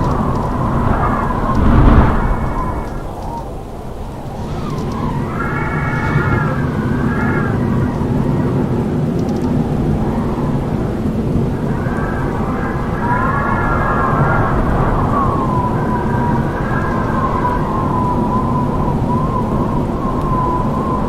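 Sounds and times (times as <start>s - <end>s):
howling wind: 0.0s - 21.0s.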